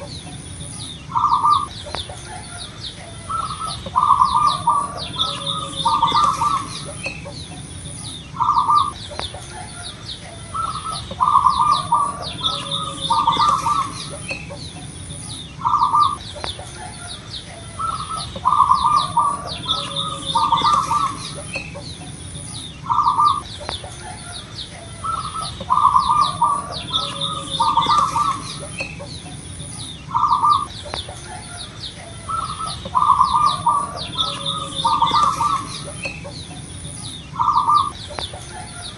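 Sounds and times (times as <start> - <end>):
dove cooing: 0.0 - 38.9
higher chirps: 10.5 - 16.5, 17.8 - 23.9, 25.0 - 31.1, 32.3 - 38.3.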